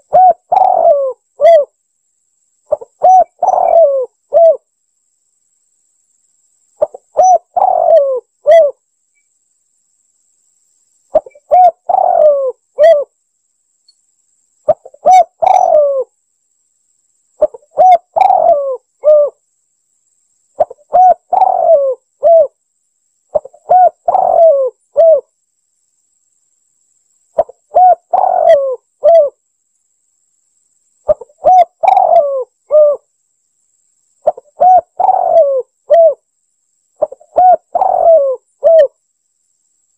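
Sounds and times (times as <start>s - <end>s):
dove cooing: 0.0s - 1.7s, 2.7s - 4.6s, 6.8s - 8.8s, 11.1s - 13.1s, 14.7s - 16.1s, 17.4s - 19.4s, 20.6s - 22.6s, 23.3s - 25.3s, 27.4s - 29.4s, 31.1s - 33.1s, 34.2s - 36.2s, 37.0s - 39.0s.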